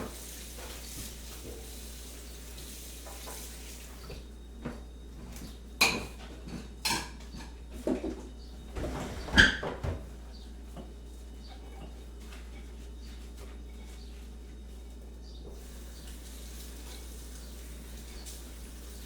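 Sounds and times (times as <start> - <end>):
crockery and cutlery clinking: 5.8 - 8.2.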